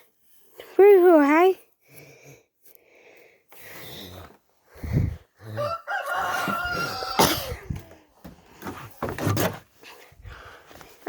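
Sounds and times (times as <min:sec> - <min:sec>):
man imitating rooster crow: 0:05.6 - 0:07.7.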